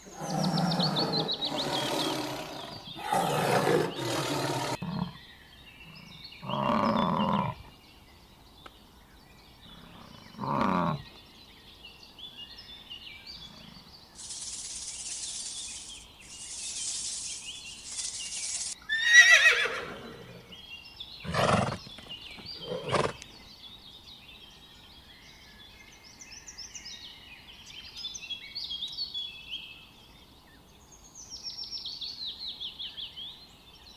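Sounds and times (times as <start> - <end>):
animal calls: 0.0 - 5.2
faint bird chirps: 0.0 - 7.4, 12.4 - 23.6
short hiss-like noises: 14.2 - 18.8.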